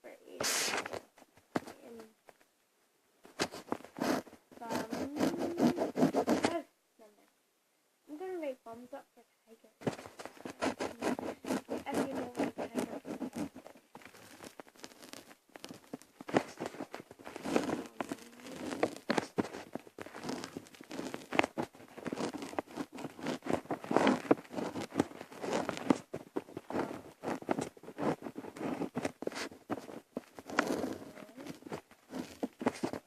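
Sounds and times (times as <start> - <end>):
close rustling and crackling: 0.2 - 2.6, 3.2 - 6.7, 9.8 - 33.0
small irregular clicks: 9.8 - 33.0.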